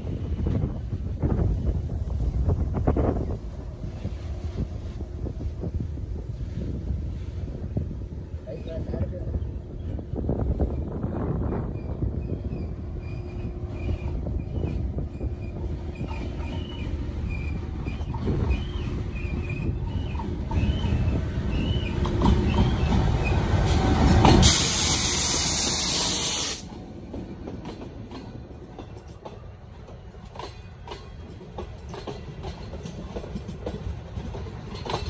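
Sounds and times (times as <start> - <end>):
diesel locomotive engine rumble: 0.0 - 35.0
loud hiss: 24.4 - 26.7
wheels clicking over rail joints: 26.6 - 35.0.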